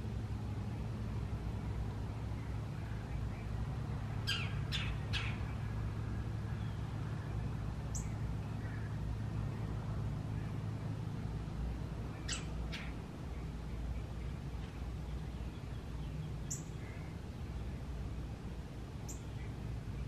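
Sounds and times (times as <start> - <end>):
sharp descending bird calls: 4.2 - 5.4.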